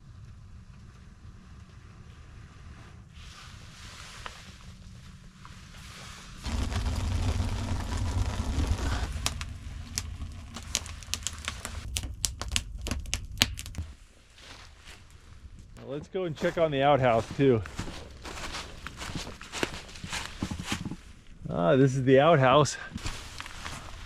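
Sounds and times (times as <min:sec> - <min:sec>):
blowing on an ember: 0:06.2 - 0:15.8
kindling crackling and popping: 0:06.4 - 0:21.4, 0:22.9 - 0:24.0.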